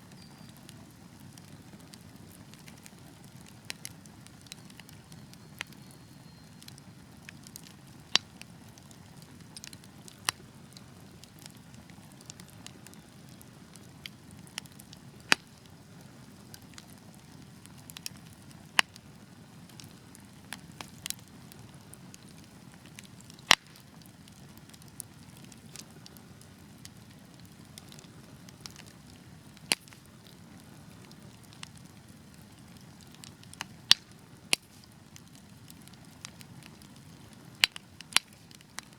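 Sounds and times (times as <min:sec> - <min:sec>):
burning logs crackling and popping: 0:00.0 - 0:38.9.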